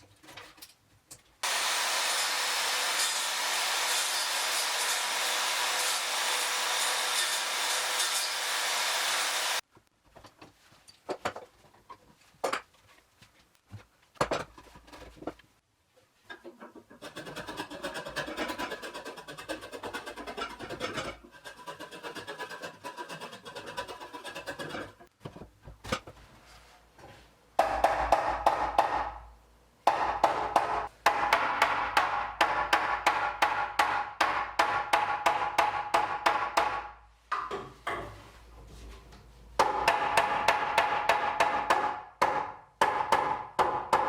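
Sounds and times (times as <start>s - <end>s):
power tool running: 1.4s - 9.6s
scraping on wood: 16.4s - 25.1s.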